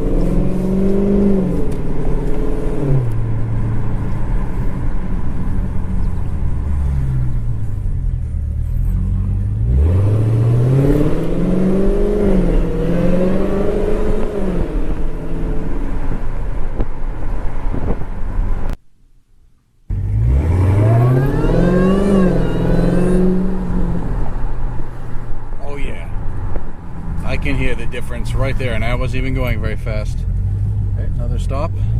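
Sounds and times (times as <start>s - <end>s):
car engine revving: 0.0s - 18.8s, 19.9s - 31.9s
supercharger whine: 19.9s - 24.8s.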